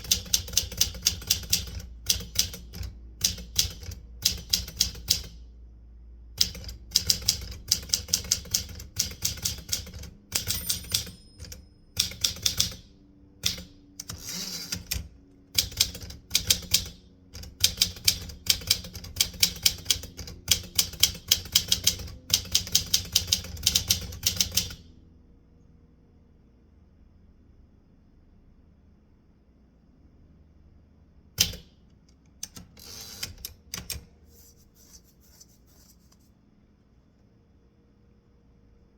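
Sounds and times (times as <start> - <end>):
typewriter keys striking: 0.0 - 5.4, 6.4 - 24.8
typewriter rasping sweep: 9.0 - 12.8.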